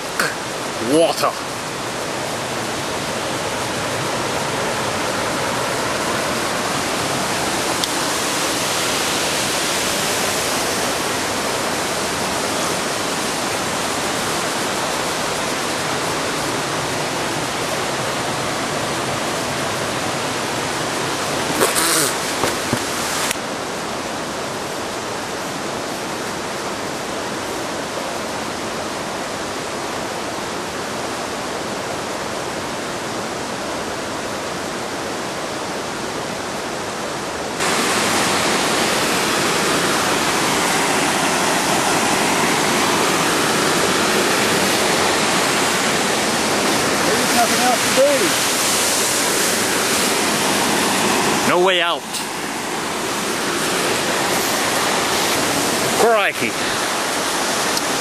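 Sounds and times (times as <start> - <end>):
waterfall roaring: 0.0 - 58.0
brief burst of noise: 21.6 - 22.5.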